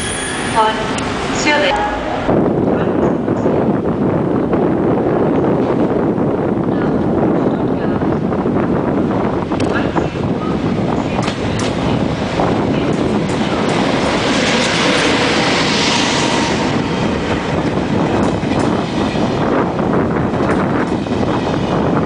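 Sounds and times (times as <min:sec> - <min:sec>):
train rumble and hiss: 0:00.0 - 0:22.0
wind buffeting microphone: 0:00.0 - 0:22.0
train wheels clicking over rail joints: 0:17.6 - 0:19.4.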